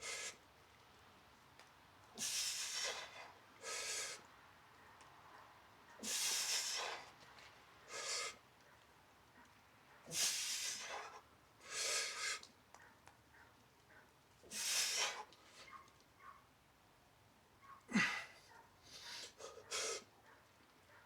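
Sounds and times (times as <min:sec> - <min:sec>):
man breathing hard: 0:00.0 - 0:00.4, 0:02.2 - 0:04.3, 0:06.0 - 0:07.2, 0:07.9 - 0:08.4, 0:10.1 - 0:12.5, 0:14.5 - 0:15.7, 0:17.9 - 0:20.1.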